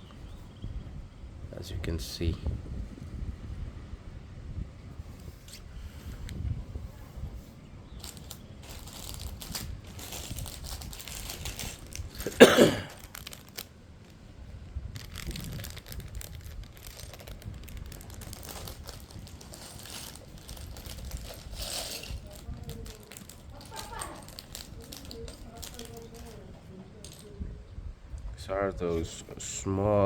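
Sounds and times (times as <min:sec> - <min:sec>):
plastic bag ripping: 0:08.0 - 0:13.7, 0:15.0 - 0:26.4
plastic bag crinkling: 0:08.0 - 0:27.3.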